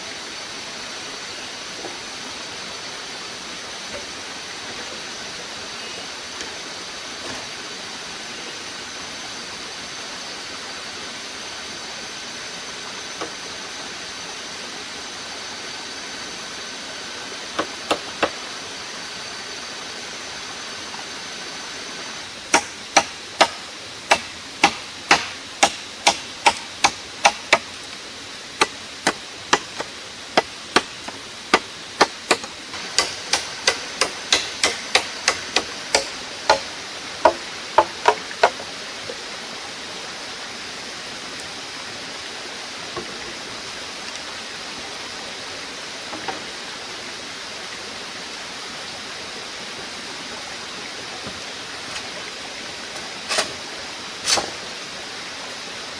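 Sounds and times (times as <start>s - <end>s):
hand tool striking: 22.5s - 27.7s, 28.6s - 38.6s.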